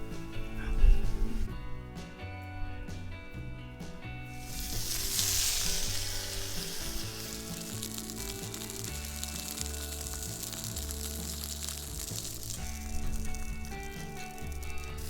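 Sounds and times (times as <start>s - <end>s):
food sizzling in a skillet: 4.3s - 15.0s.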